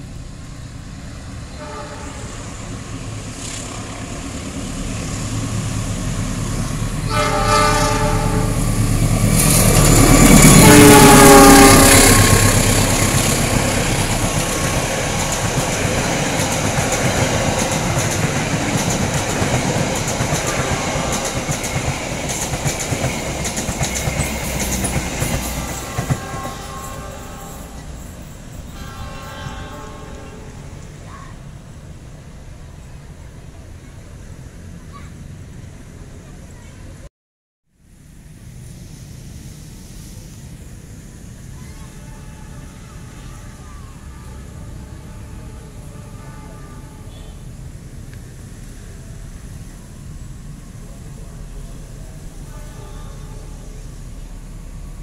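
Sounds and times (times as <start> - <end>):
train coaches rumbling and clattering: 0.0 - 37.0, 38.3 - 55.0
locomotive horn: 1.5 - 2.5, 7.0 - 8.8, 9.9 - 14.6, 25.4 - 31.0, 41.7 - 47.5, 52.2 - 54.0.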